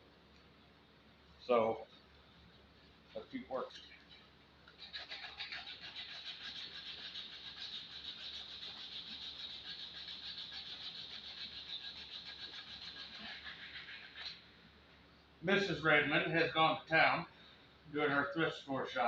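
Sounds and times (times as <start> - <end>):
sandpaper rubbing on wood: 4.8 - 14.4.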